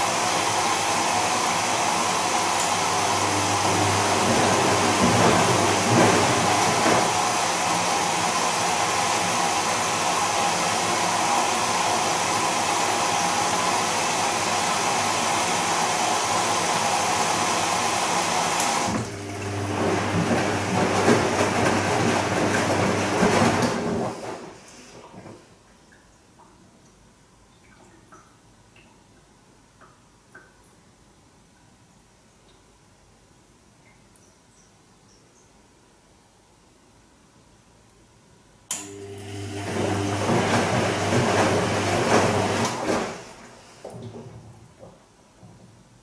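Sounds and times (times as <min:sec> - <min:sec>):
washing machine whirring: 0:00.0 - 0:25.7, 0:38.7 - 0:46.0.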